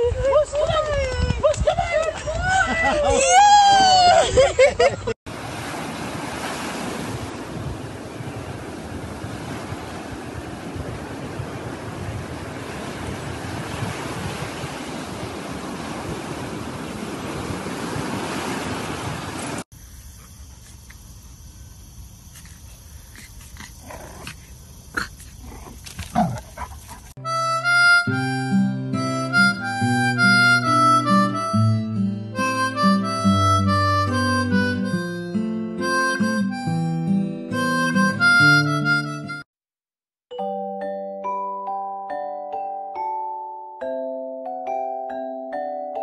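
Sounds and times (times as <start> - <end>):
wind on microphone: 0.0 - 4.9, 5.5 - 19.6
surf washing on beach: 5.3 - 19.7
harmonica music: 27.2 - 39.5.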